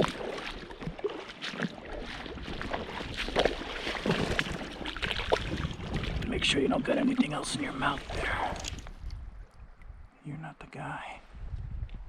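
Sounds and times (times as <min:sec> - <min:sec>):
small splashes and knocks: 0:00.0 - 0:06.4
flowing river water: 0:00.0 - 0:10.2.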